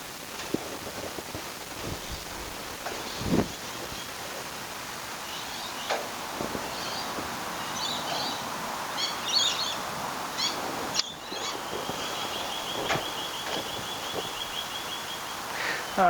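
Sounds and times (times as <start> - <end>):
background hiss: 0.0 - 16.0
birds chirping: 0.0 - 16.0
high bird trill: 6.6 - 16.0.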